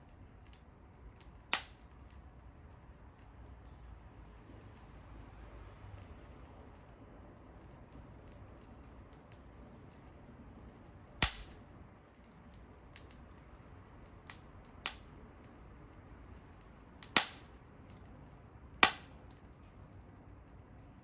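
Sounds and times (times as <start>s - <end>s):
wood fire crackling: 0.0s - 21.0s
sharp loud pops: 11.2s - 11.6s, 17.2s - 17.5s, 18.8s - 19.1s.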